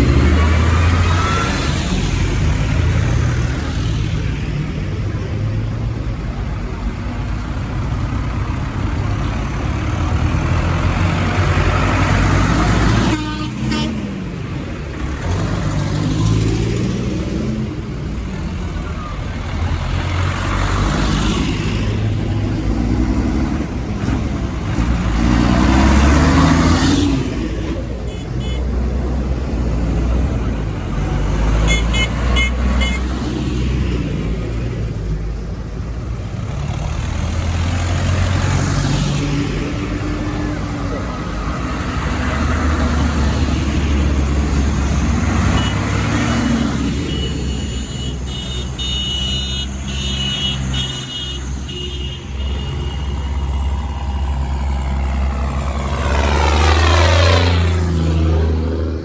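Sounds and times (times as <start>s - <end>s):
tractors driving past: 0.0s - 59.0s
horn toots: 12.6s - 14.3s, 28.1s - 28.7s, 31.6s - 33.1s, 44.6s - 53.6s.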